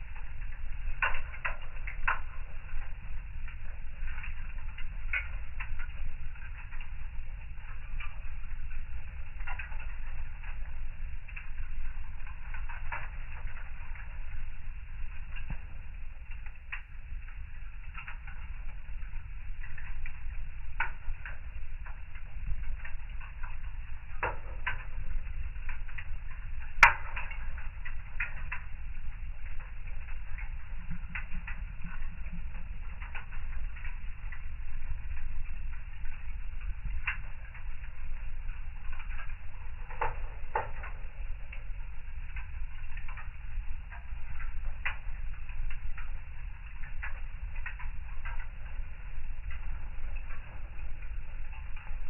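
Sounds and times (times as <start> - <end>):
fire crackling: 0.0 - 52.0
low steady rumble: 0.0 - 52.0.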